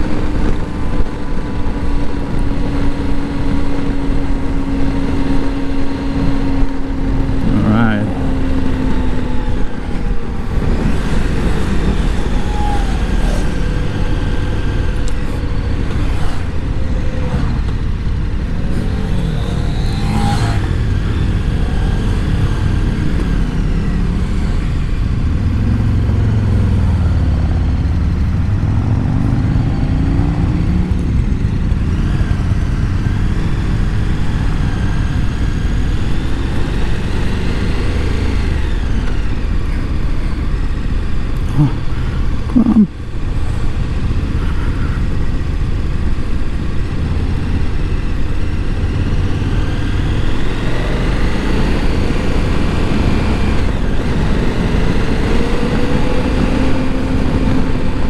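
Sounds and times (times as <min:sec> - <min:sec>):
motorcycle engine revving: 0:00.0 - 0:58.0
wind and road noise: 0:00.0 - 0:58.0.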